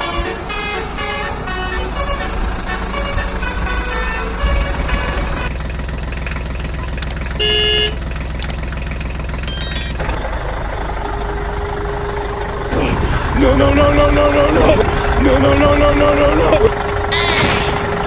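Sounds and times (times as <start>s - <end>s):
vehicle engine rumbling: 0.0s - 18.0s
short horn honk: 7.4s - 8.0s, 17.1s - 17.9s.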